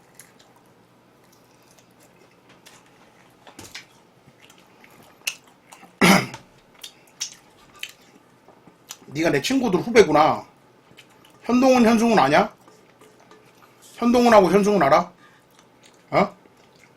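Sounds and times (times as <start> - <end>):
person chewing: 0.0 - 6.0, 6.6 - 9.1, 10.9 - 11.4, 15.4 - 16.9
mouth clicks and smacks: 5.2 - 6.0, 6.8 - 8.0.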